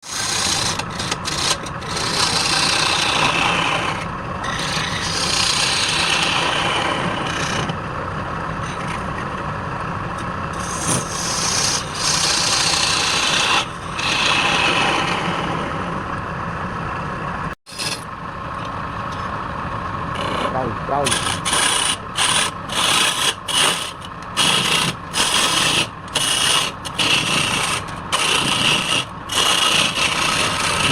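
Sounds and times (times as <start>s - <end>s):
lathe tool scraping wood: 0.0s - 7.8s, 10.6s - 16.0s, 17.7s - 18.1s, 20.1s - 30.9s.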